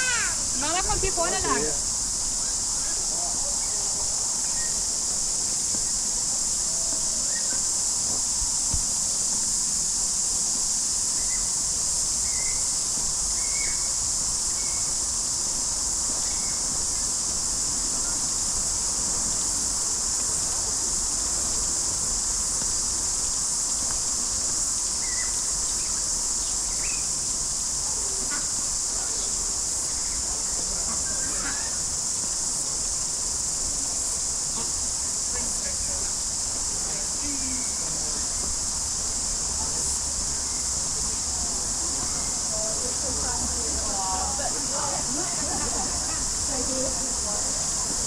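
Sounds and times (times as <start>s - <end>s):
high-pitched insect chorus: 0.0s - 48.0s.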